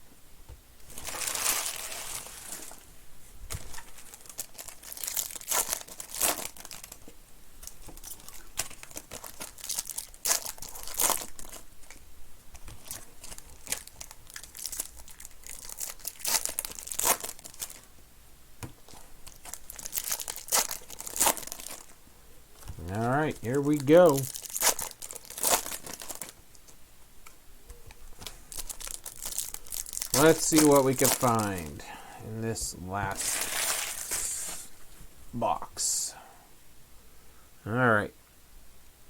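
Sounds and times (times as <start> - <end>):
card pack wrappers tearing: 0.9 - 2.8, 3.5 - 7.0, 7.6 - 17.8, 18.9 - 22.0, 22.8 - 26.4, 28.2 - 31.8, 33.1 - 34.6.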